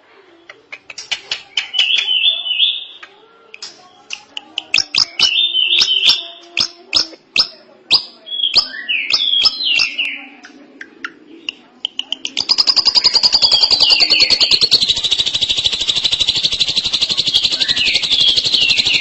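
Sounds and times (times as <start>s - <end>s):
drongo singing: 0.4s - 19.0s.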